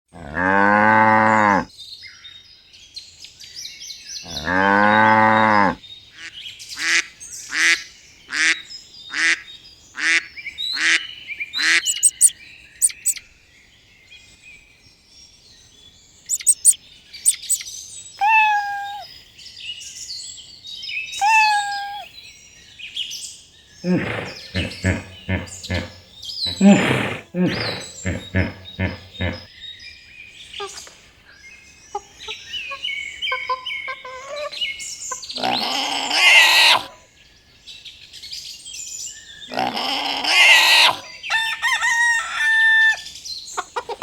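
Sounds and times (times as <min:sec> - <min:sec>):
birds chirping: 0:10.8 - 0:13.2, 0:16.2 - 0:19.1, 0:21.2 - 0:22.3, 0:23.8 - 0:29.7
short animal calls: 0:11.6 - 0:13.2, 0:16.3 - 0:17.6, 0:18.2 - 0:19.0, 0:21.2 - 0:22.1, 0:35.4 - 0:36.9
whistled calls: 0:11.6 - 0:13.2, 0:16.3 - 0:19.1, 0:21.2 - 0:22.1
long low animal calls: 0:11.7 - 0:13.2, 0:16.3 - 0:17.6, 0:18.2 - 0:19.0, 0:21.2 - 0:22.1, 0:23.8 - 0:29.5, 0:35.4 - 0:37.0, 0:39.5 - 0:41.1.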